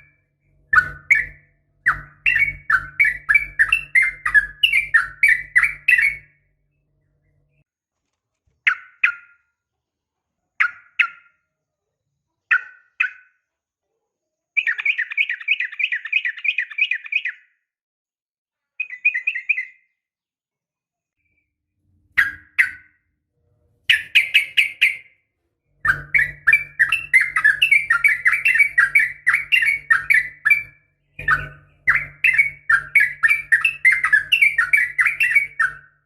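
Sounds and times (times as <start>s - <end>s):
bird chirping and trilling: 0.0s - 7.6s, 8.6s - 9.5s, 10.6s - 11.4s, 12.5s - 13.4s, 14.6s - 17.6s, 18.8s - 20.0s, 21.2s - 23.1s, 23.9s - 36.0s.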